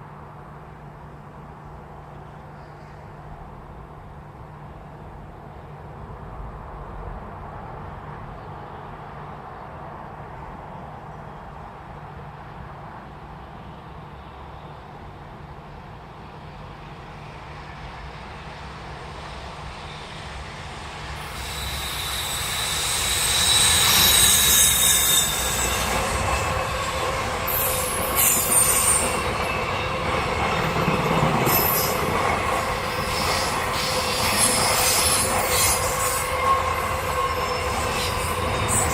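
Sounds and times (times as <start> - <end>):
train passing: 3.1 - 38.9
train wheels squealing: 16.7 - 38.9.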